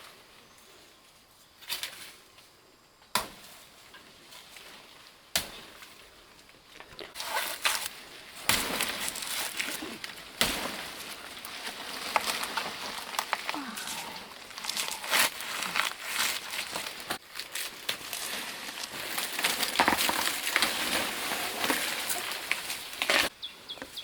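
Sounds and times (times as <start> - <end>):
rustling handling noise: 6.5 - 23.3.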